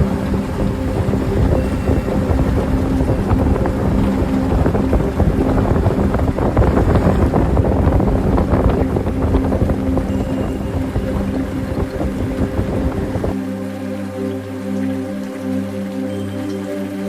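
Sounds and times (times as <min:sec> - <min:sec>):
engine running: 0:00.0 - 0:13.4
wind noise on microphone: 0:00.0 - 0:13.4.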